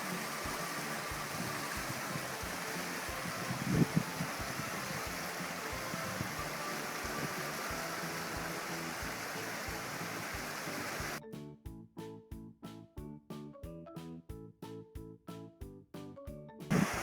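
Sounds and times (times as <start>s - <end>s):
river rushing: 0.0s - 11.2s, 16.7s - 17.0s
faint background music: 0.0s - 17.0s.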